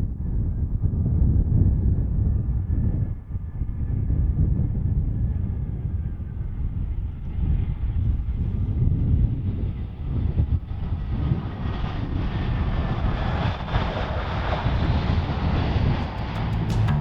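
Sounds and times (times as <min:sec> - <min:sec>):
wind buffeting microphone: 0:00.0 - 0:17.0
jet engines roaring: 0:06.5 - 0:17.0.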